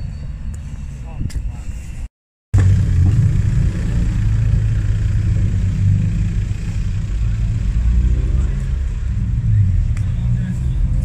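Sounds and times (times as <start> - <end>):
car engine idling: 2.6 - 10.9.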